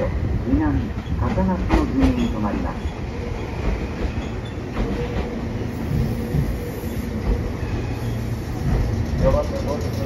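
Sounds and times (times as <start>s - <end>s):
train cars rolling past: 0.8s - 10.0s
wheels clacking over rail joints: 8.5s - 10.0s.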